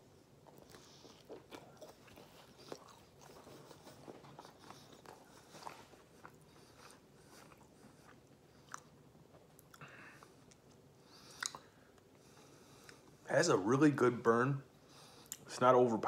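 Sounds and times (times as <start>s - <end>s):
person chewing pizza: 0.0s - 13.2s.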